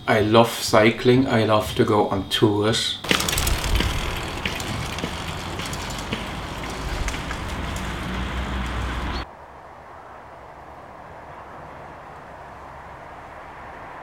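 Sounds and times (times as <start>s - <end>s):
road noise rumble: 3.0s - 14.0s.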